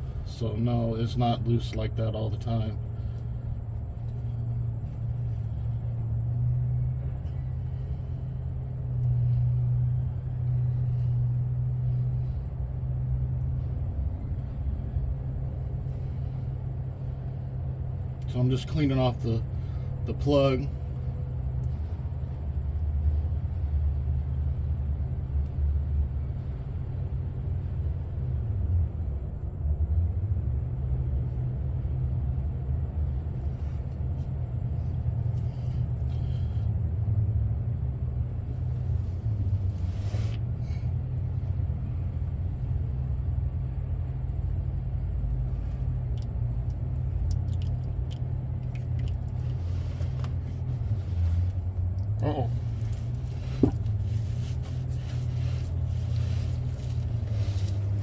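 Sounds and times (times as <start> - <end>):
low rumble: 0.0 - 18.5.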